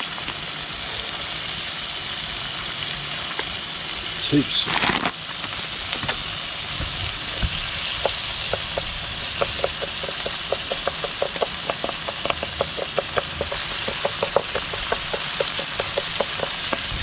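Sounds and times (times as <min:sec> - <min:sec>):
food sizzling in oil: 0:00.0 - 0:17.0
spatula clicking against pan: 0:08.0 - 0:16.9.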